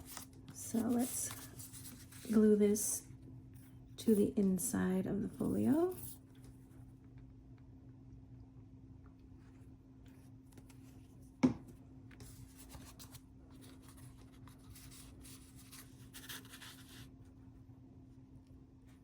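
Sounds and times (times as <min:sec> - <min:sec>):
cardstock rustling and rubbing: 0:00.0 - 0:02.5, 0:12.2 - 0:17.1
faint steady hum: 0:00.0 - 0:19.0.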